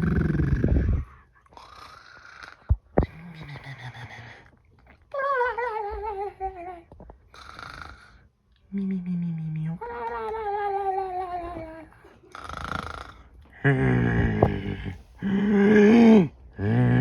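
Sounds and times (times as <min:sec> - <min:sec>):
person cartoon snoring: 0:00.0 - 0:01.1, 0:12.3 - 0:17.0.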